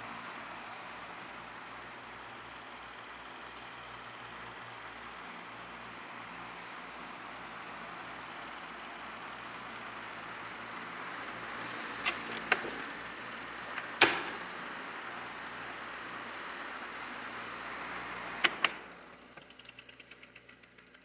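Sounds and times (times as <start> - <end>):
faint motor hum: 0.0 - 21.0
fan air rushing: 7.4 - 19.2
sharp clicks: 13.6 - 14.6, 18.4 - 21.0.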